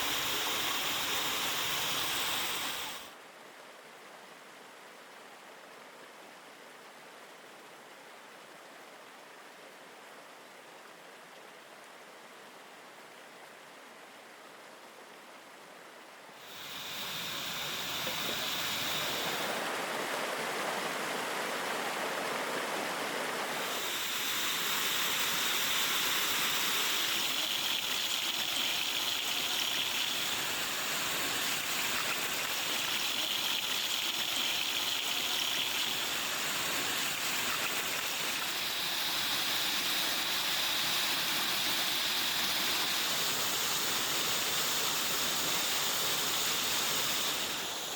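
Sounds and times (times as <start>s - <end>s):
waterfall rushing: 16.5s - 22.2s, 22.8s - 47.9s.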